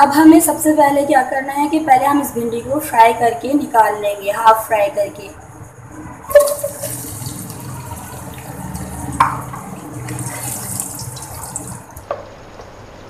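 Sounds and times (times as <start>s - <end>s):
okra sizzling in hot oil: 6.3s - 12.1s.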